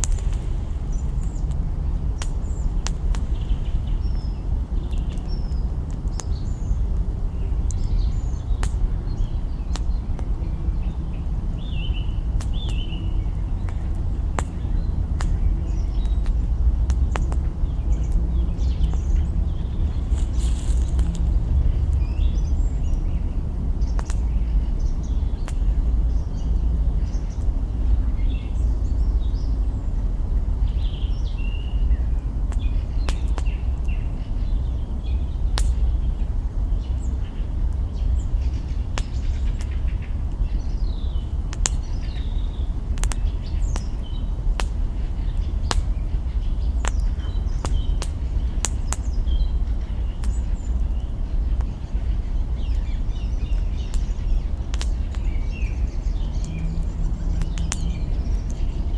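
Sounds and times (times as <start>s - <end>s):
branches popping in fire: 0.0s - 3.9s, 13.6s - 22.8s, 35.6s - 35.9s, 41.5s - 42.2s, 42.9s - 46.0s, 46.6s - 49.4s, 52.8s - 58.7s
campfire crackling: 0.0s - 10.3s, 11.4s - 24.3s, 35.5s - 35.8s, 36.8s - 58.9s
small birds chirping: 0.0s - 58.9s
steady low rumble: 0.0s - 58.9s.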